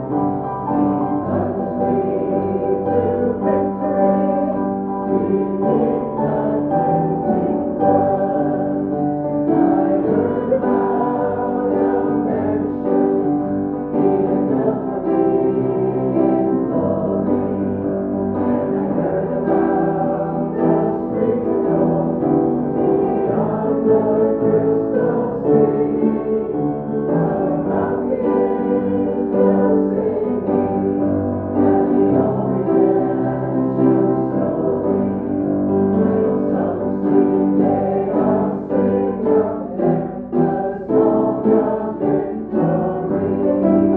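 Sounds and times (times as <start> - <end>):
hymn on piano: 0.0 - 43.9
voices singing: 0.0 - 43.9.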